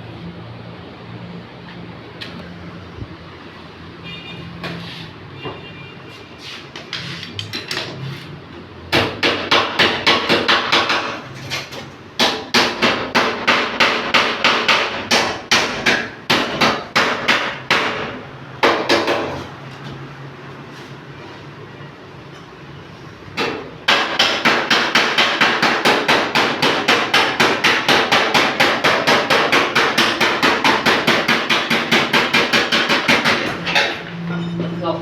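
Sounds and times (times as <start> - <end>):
hammer on sheet metal: 8.9 - 19.5, 23.4 - 34.2.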